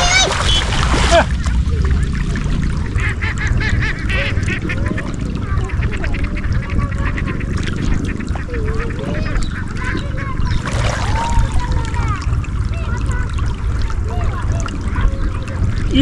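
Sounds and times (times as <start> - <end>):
river rushing: 0.0 - 1.6
ducks quacking: 2.8 - 11.0.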